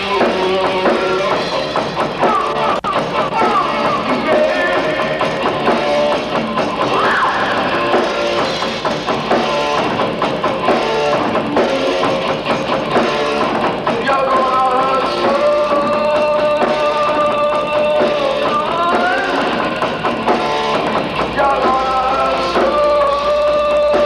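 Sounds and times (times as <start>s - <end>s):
rock band playing live: 0.0s - 24.0s.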